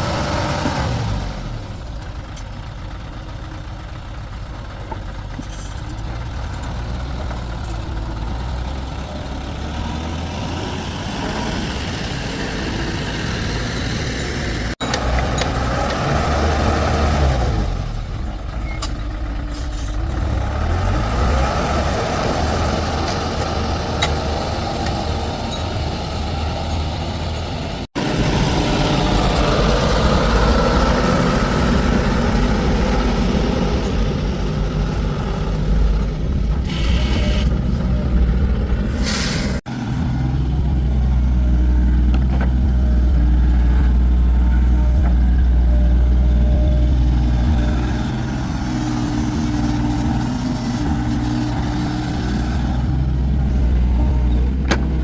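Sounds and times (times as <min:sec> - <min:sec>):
diesel engine humming: 0:00.0 - 0:55.0
air hiss bursts: 0:39.0 - 0:39.6.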